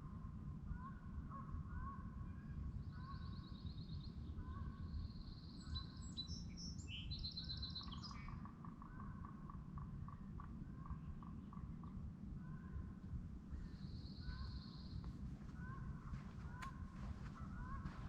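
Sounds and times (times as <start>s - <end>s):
steady low rumble: 10.2s - 18.0s.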